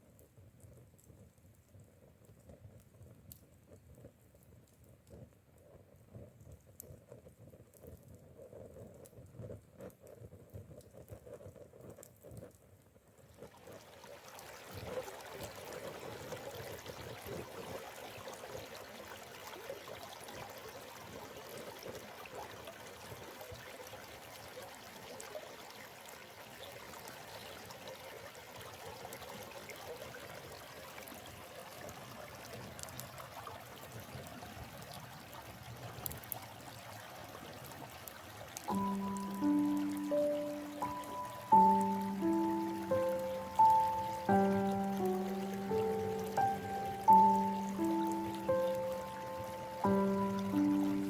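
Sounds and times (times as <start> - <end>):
stream water running: 13.3 - 51.0.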